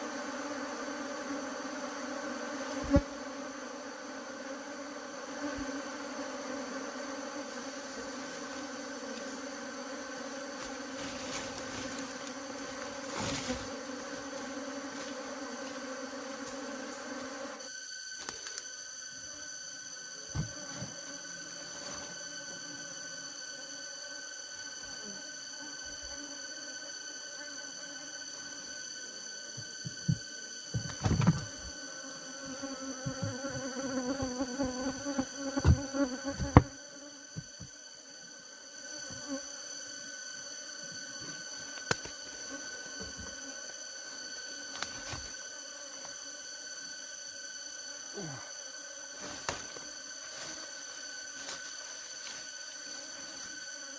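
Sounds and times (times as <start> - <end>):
high insect trilling: 0.0 - 53.9
honey bees buzzing: 0.0 - 53.9
dull thumps: 29.6 - 31.7, 33.0 - 35.0, 35.6 - 36.8.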